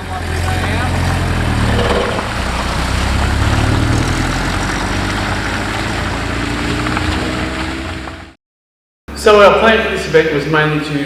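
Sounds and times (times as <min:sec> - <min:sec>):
car engine running: 0:00.0 - 0:08.4.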